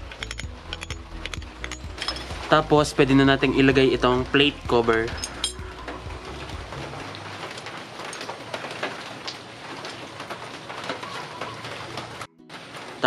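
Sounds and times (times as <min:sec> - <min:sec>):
metal plate clicking on metal: 0:00.0 - 0:02.3
steady rain-like hiss: 0:01.1 - 0:13.0.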